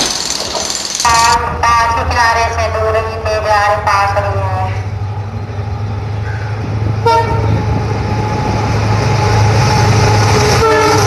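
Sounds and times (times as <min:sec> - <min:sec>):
train running drone: 0:00.0 - 0:11.0
diesel locomotive horn: 0:07.0 - 0:07.8, 0:09.9 - 0:11.0.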